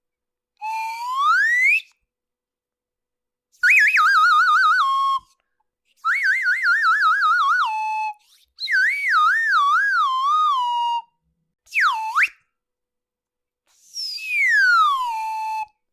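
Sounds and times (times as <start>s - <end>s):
swooping whistle: 0.6s - 2.0s, 11.7s - 12.4s, 13.8s - 15.8s.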